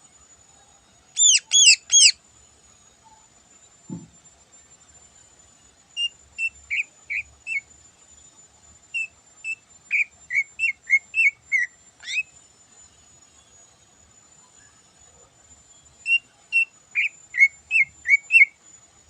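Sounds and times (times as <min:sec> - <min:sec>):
faint high-pitched tone: 0:00.0 - 0:01.4, 0:12.2 - 0:16.9
bird singing whistled notes: 0:01.2 - 0:02.2, 0:06.0 - 0:07.7, 0:08.9 - 0:12.3, 0:16.0 - 0:18.6.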